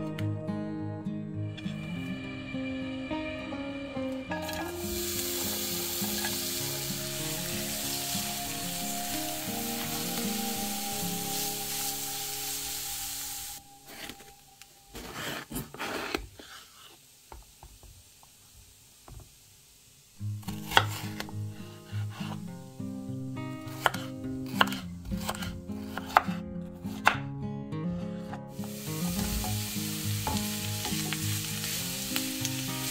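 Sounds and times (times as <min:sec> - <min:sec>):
vegetables sizzling in oil: 0:04.3 - 0:27.2, 0:28.5 - 0:32.9
spatula scraping pan: 0:14.9 - 0:17.0
knife slicing on cutting board: 0:20.5 - 0:21.3, 0:23.7 - 0:27.2.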